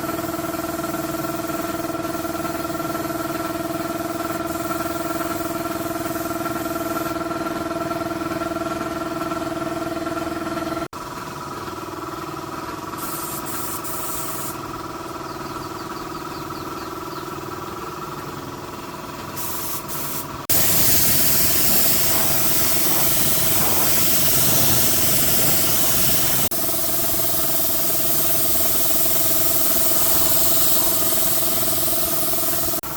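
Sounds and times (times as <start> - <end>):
spray hissing: 13.0 - 14.6, 19.4 - 32.9
machine hum: 20.4 - 32.9.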